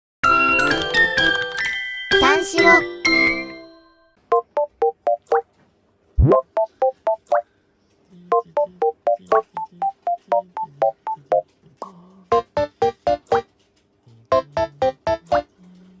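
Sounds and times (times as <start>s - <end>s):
bouncy electronic keyboard tune: 4.3s - 5.4s, 6.2s - 7.4s, 8.3s - 11.4s, 12.3s - 13.5s, 14.3s - 15.5s.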